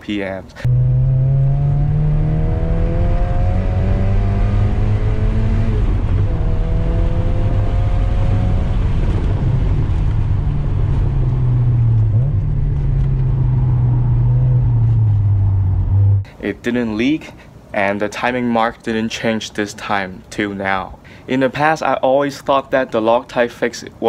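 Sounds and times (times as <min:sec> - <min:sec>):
car engine accelerating: 0:00.6 - 0:16.3
low cabin rumble: 0:08.8 - 0:16.3.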